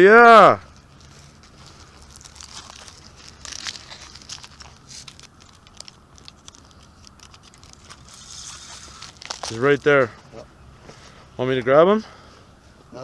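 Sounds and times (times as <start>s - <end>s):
crinkling handling noise: 0.6s - 13.0s.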